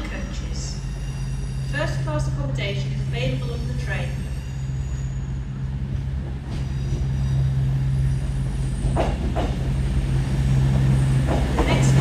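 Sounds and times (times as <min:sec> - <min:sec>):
diesel train engine drone: 0:00.0 - 0:12.0
train wheel squeals: 0:00.3 - 0:09.6.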